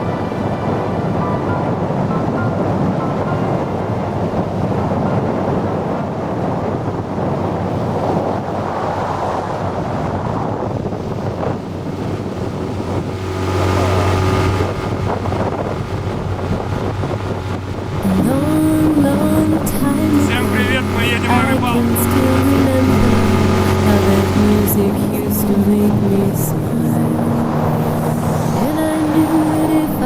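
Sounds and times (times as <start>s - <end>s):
wind noise on microphone: 0.0s - 30.0s
motor running: 17.7s - 29.4s.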